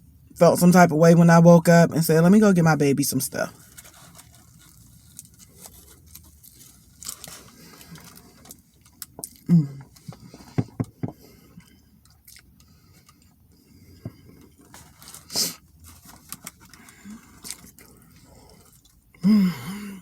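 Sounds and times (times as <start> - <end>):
wet chewing: 11.6 - 13.5
person humming: 19.2 - 20.0.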